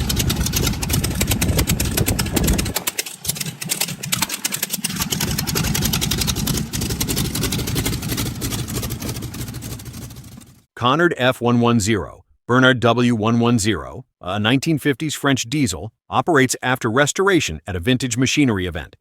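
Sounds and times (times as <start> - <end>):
radial aircraft engine running: 0.0 - 10.6.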